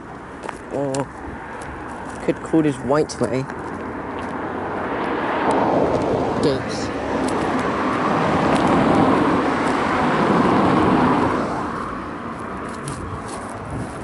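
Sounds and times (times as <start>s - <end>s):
car passing on road: 0.0s - 14.0s.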